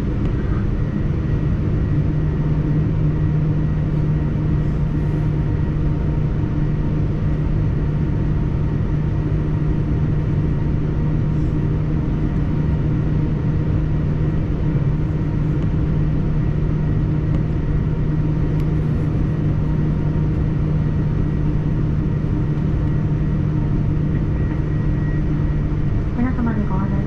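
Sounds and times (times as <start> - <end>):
airliner cabin rumble and hum: 0.0 - 27.0
faint steady tones: 21.2 - 27.0.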